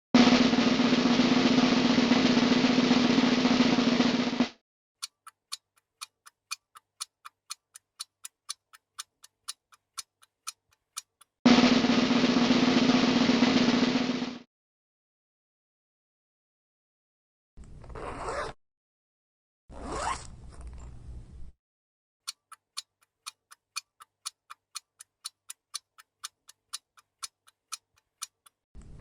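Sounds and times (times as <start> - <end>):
snare drum roll: 0.2 - 4.6, 11.5 - 14.5
rapid even ticking: 0.2 - 14.4, 22.3 - 28.6.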